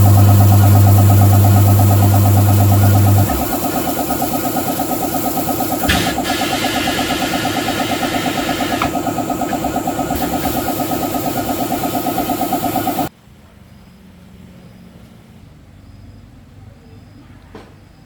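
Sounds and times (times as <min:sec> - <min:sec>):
machine engine running: 0:00.0 - 0:13.1.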